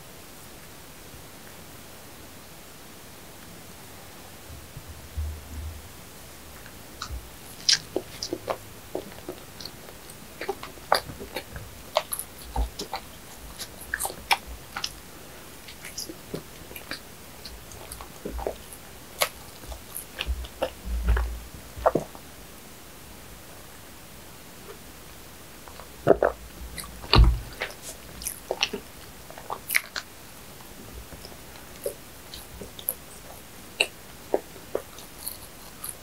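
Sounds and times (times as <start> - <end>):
dull low thumps: 4.4 - 7.4, 26.7 - 27.6
wet mouth chewing smacks: 7.0 - 15.0, 15.6 - 22.1, 25.7 - 30.1, 31.1 - 36.0.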